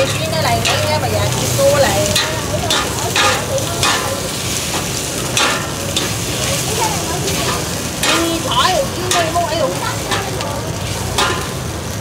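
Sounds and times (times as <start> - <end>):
metal utensil scraping a pan: 0.0 - 11.8
food sizzling in oil: 0.0 - 12.0.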